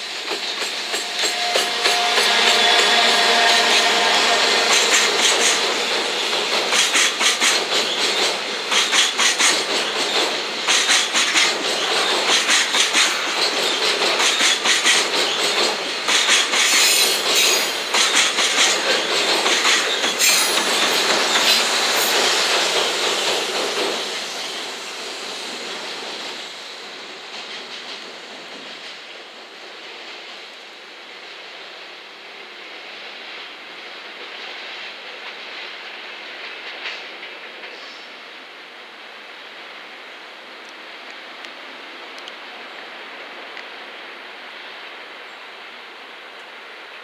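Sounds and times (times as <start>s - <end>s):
train wheels clattering over rail joints: 4.7s - 24.6s.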